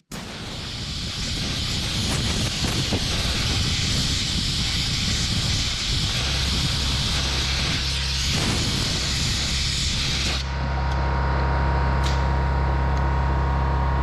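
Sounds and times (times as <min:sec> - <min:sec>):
compressed air blow gun hissing: 0:00.0 - 0:10.5.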